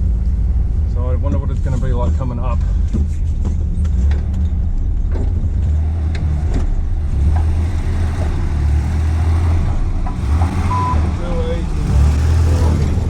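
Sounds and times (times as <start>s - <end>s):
engine running low: 0.0s - 13.0s
knocks and clicks: 10.0s - 11.1s.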